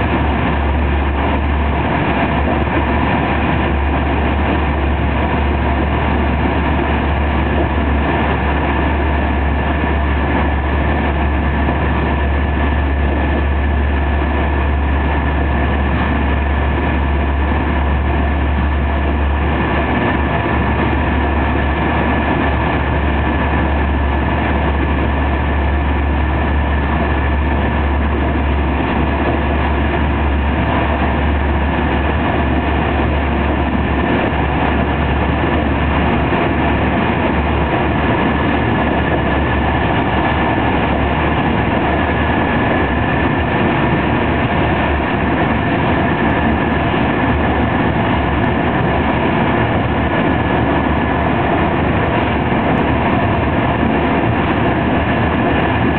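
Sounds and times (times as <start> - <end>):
deep hum: 0.0 - 55.9
wheels rumbling on rail: 0.0 - 55.9.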